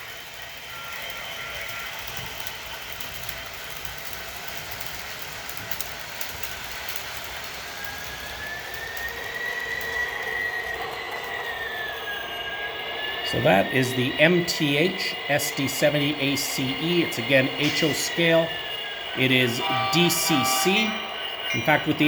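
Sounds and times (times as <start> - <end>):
wheels rolling on track: 0.0 - 13.7
model locomotive diesel sound: 0.0 - 22.0
high squeal: 7.8 - 22.0.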